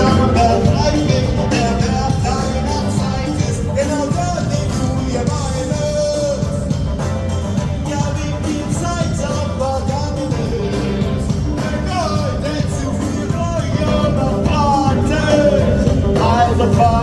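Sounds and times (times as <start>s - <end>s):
live rock band playing: 0.0s - 17.0s
person singing: 0.0s - 17.0s.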